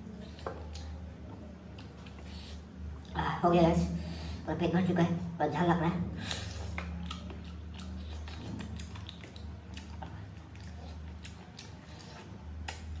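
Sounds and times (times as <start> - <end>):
steady low hum: 0.0 - 13.0
person biting and chewing: 6.3 - 13.0.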